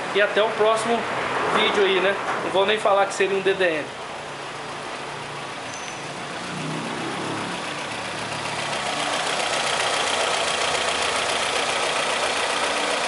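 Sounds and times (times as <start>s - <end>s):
car engine idling: 3.8s - 13.0s.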